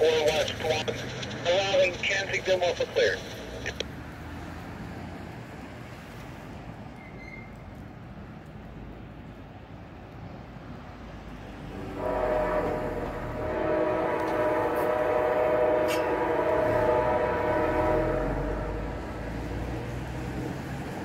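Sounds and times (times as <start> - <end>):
train air horn: 11.7 - 19.3.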